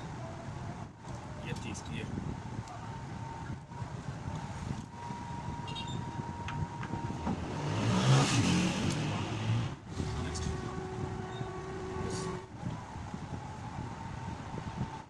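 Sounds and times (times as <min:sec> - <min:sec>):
vehicle engine passing: 0:04.6 - 0:14.9.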